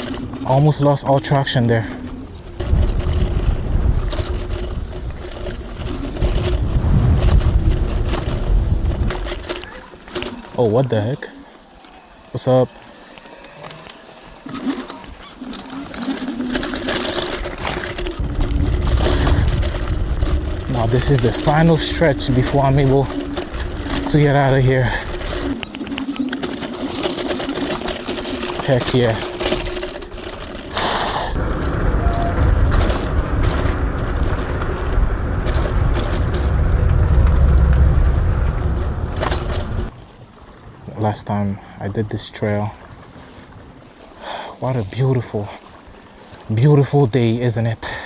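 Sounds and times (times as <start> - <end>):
wind buffeting microphone: 0.0 - 10.3, 15.6 - 40.0
electric scooter motor whining: 0.0 - 10.6, 11.4 - 39.9
tyre and chassis clatter: 0.0 - 40.3
low rumble: 2.0 - 9.7, 16.7 - 27.5, 29.2 - 40.0.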